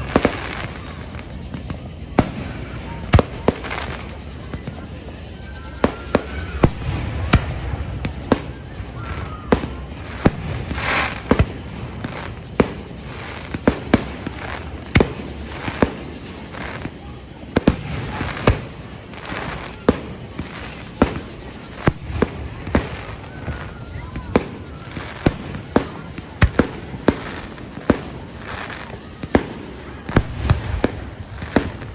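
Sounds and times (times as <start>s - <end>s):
firework crackle: 0.0s - 31.9s
firework shells bursting: 5.8s - 16.9s.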